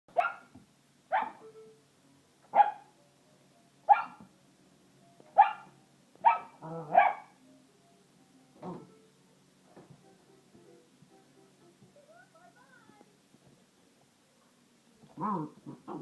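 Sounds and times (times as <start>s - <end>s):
puppy barking: 0.1s - 0.5s, 1.1s - 1.4s, 2.5s - 2.9s, 3.9s - 4.3s, 5.4s - 7.4s.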